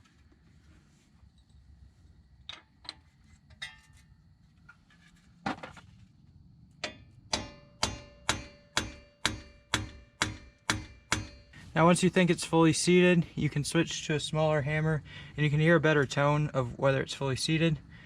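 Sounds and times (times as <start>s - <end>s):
hammer tapping metal: 6.8s - 11.6s.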